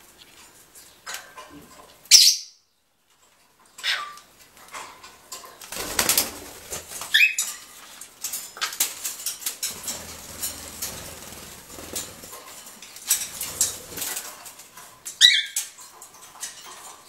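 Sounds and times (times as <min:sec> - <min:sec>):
birds pecking and tapping: 0:04.4 - 0:17.0
wings fluttering: 0:05.7 - 0:07.5, 0:09.2 - 0:14.6.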